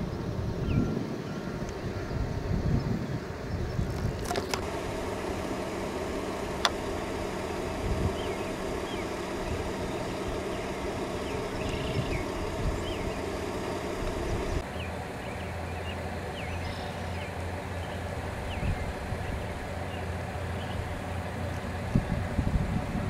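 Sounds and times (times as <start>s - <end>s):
vehicle engine idling: 0.0s - 23.0s
bird chirps: 8.0s - 21.0s.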